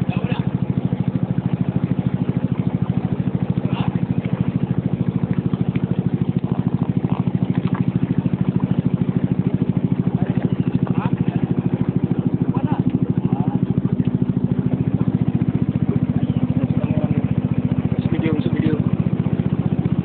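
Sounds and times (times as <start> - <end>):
small boat engine thumping: 0.0 - 20.0.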